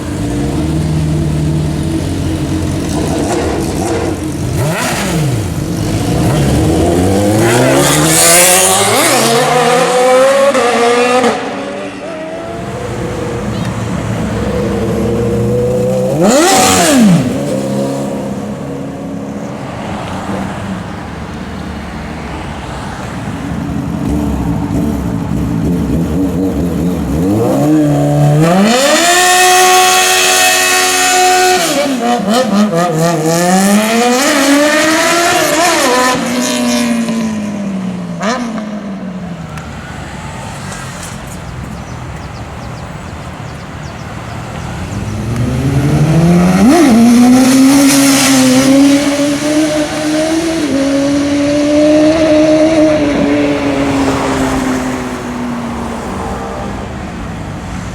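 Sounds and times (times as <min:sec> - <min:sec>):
motorcycle engine revving hard: 0:00.0 - 0:18.6, 0:44.9 - 0:55.4.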